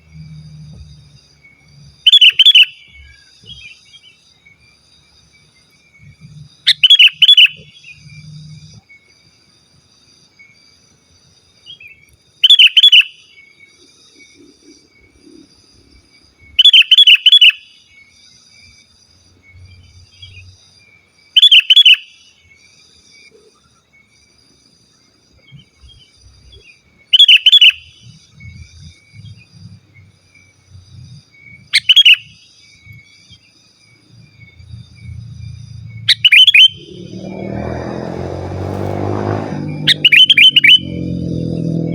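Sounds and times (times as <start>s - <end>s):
bird singing bubbly phrases: 34.5s - 38.0s.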